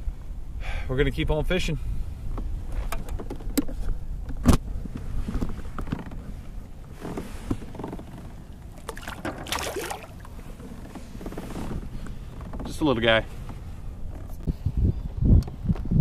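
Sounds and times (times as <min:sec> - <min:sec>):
knocks and handling on kayak: 0:02.4 - 0:12.8.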